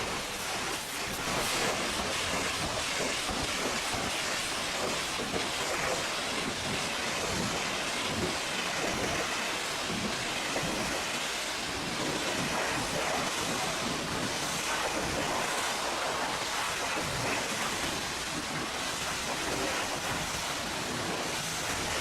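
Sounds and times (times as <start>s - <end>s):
pressure washer spray: 0.0s - 6.1s.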